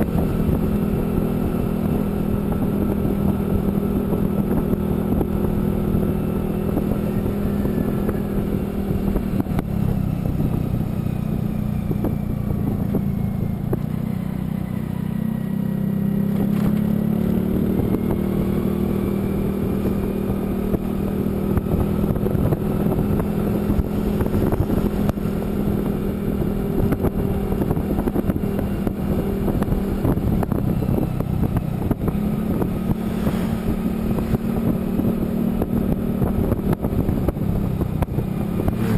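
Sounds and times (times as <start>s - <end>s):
road and wind noise: 0.0s - 38.9s
vehicle engine running: 0.0s - 38.9s.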